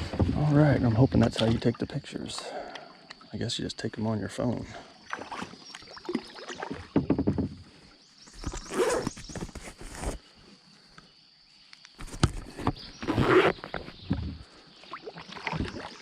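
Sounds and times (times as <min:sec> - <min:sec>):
rustling and scraping with knocks: 0:00.0 - 0:00.8, 0:06.8 - 0:10.2, 0:12.0 - 0:14.4.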